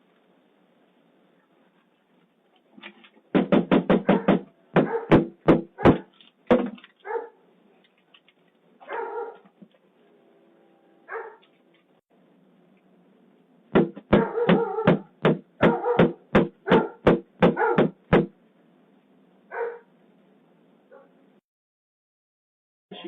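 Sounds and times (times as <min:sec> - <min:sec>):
dog barking: 0:04.0 - 0:06.1, 0:07.0 - 0:07.4, 0:08.8 - 0:09.5, 0:11.1 - 0:11.5, 0:14.1 - 0:18.0, 0:19.5 - 0:19.9, 0:20.9 - 0:21.2.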